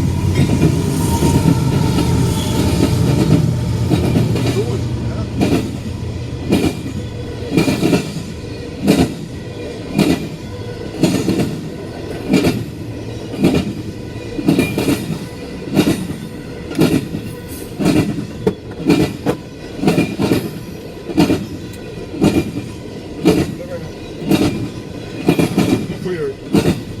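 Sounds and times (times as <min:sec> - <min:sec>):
train rolling rumble: 0:00.0 - 0:27.0
train wheels clacking over joints: 0:00.0 - 0:27.0.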